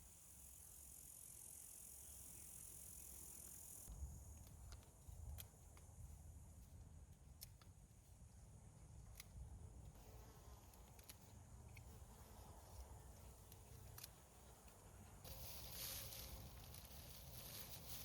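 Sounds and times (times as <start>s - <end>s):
soft ticks: 7.1s - 7.8s.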